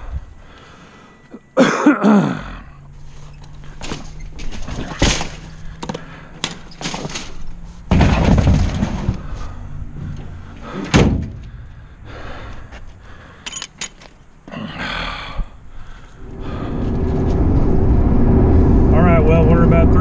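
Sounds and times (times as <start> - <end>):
plastic planters knocking and scraping: 7.9 - 9.3.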